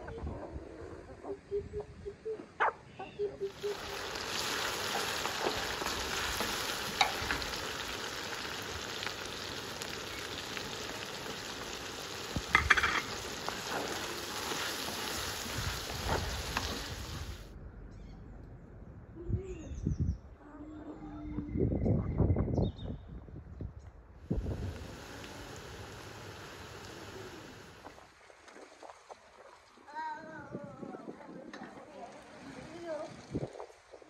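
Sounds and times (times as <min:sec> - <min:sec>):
food sizzling in a pan: 0:03.5 - 0:17.5, 0:24.3 - 0:28.0
faint bird chirps: 0:17.9 - 0:18.4.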